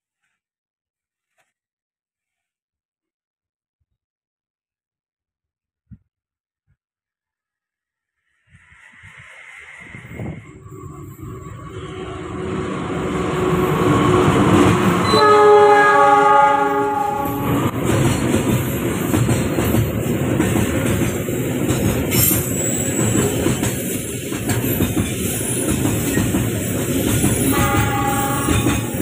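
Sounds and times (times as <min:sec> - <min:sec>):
train wheels rumbling on rails: 0:08.6 - 0:29.0
train horn blast: 0:11.7 - 0:17.8, 0:27.5 - 0:29.0.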